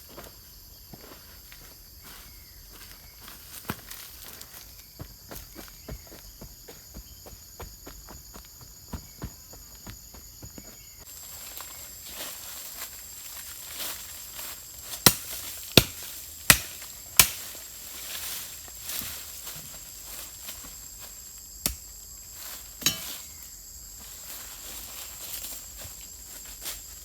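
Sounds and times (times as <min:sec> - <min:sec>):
insect drone: 0:00.0 - 0:27.0
blade chopping wood: 0:15.0 - 0:17.5.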